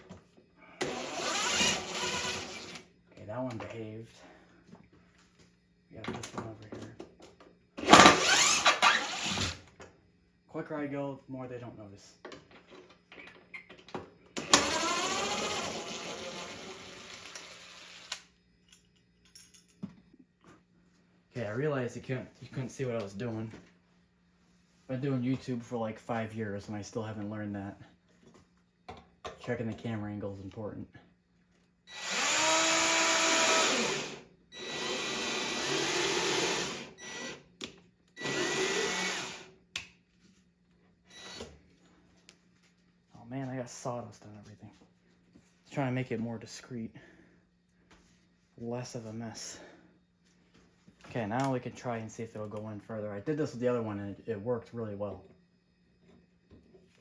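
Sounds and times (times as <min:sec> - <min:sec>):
power drill drilling into wood: 0:00.8 - 0:02.8, 0:07.8 - 0:09.6, 0:14.4 - 0:18.1, 0:31.9 - 0:37.4, 0:38.2 - 0:39.5.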